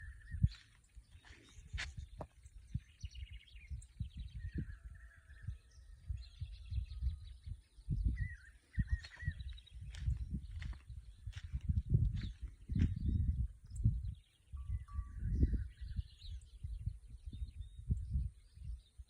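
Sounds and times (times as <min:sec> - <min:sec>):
birds chirping and trilling: 0:00.0 - 0:19.0
low thumps and rumbling: 0:07.9 - 0:14.1.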